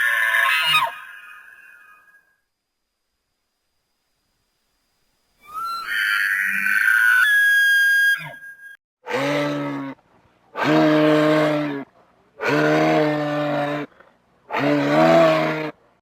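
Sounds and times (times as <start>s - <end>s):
animal bellowing calls: 0.0s - 2.2s, 5.4s - 15.8s.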